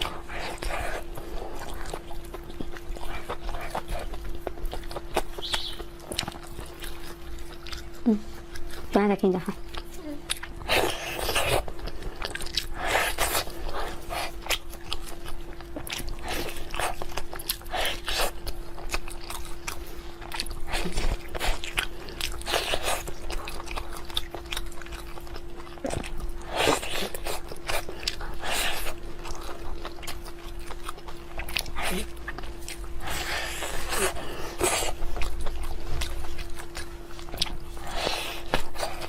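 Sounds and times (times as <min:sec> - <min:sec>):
faint hum: 0:00.0 - 0:39.0
person chewing crunchy food: 0:00.0 - 0:39.0.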